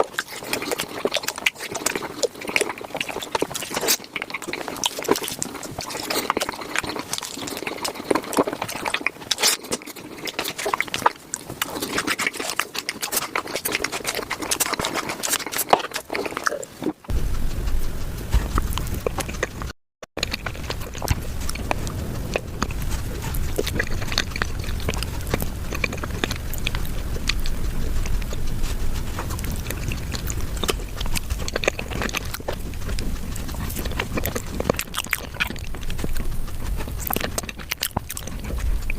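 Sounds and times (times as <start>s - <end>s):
chewing and mouth clicks: 0.0s - 38.9s
low rumble: 17.1s - 38.9s.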